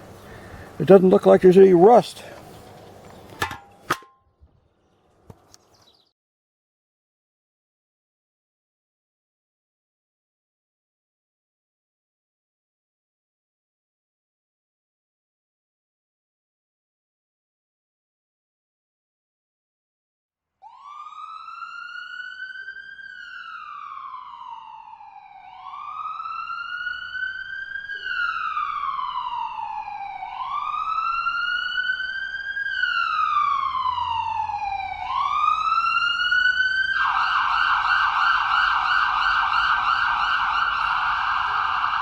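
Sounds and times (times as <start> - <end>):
emergency vehicle siren wailing: 20.6 - 42.0.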